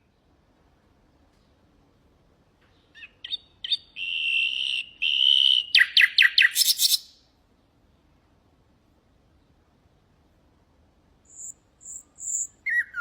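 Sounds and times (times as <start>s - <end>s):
nightingale singing: 2.8s - 7.2s, 11.3s - 13.0s.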